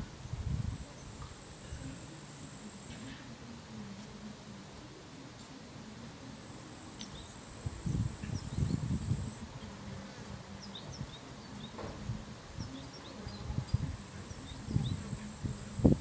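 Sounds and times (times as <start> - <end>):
wind gusts on microphone: 0.0 - 2.0, 7.5 - 16.0
cricket trilling: 6.9 - 9.4.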